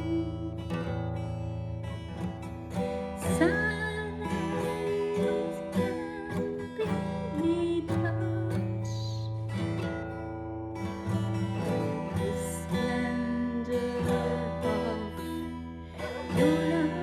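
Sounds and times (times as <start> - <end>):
woman singing slow song: 0.0 - 1.3, 3.0 - 9.8, 11.2 - 17.0
strummed acoustic guitar: 0.0 - 17.0.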